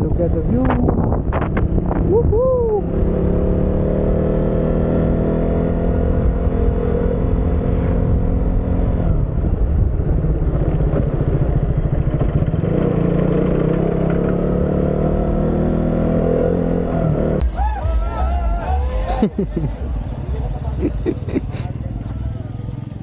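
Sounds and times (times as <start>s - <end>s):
motorcycle engine running: 0.0s - 15.6s, 21.7s - 23.0s
wind and road rumble: 0.0s - 17.4s.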